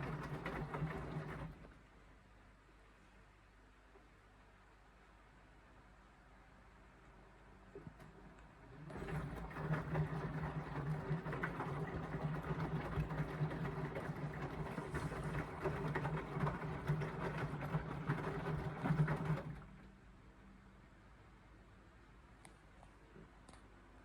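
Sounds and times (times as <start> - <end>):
wet laundry tumbling and sloshing: 0.0 - 1.7, 8.8 - 19.8
washing machine motor hum: 0.0 - 1.8, 7.8 - 19.8.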